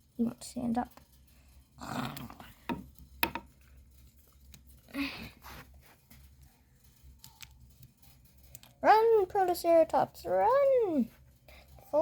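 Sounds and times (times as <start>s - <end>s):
plastic toys clicking and knocking: 0.2s - 5.4s, 6.1s - 12.0s
rustling scrape: 5.3s - 8.5s.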